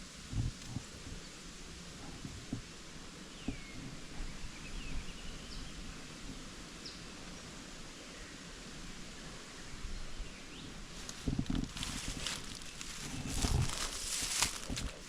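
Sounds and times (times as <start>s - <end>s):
steady background hiss: 0.0s - 15.0s
soft thuds and rustles: 11.0s - 15.0s.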